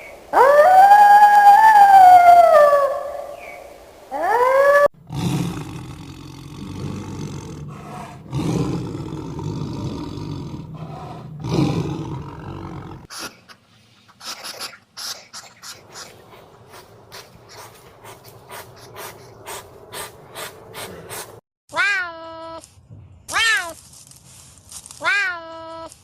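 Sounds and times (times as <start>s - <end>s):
animal howl rising in pitch: 0.3s - 3.3s, 4.1s - 4.9s
low rough growling roars: 5.0s - 13.1s, 16.1s - 21.4s.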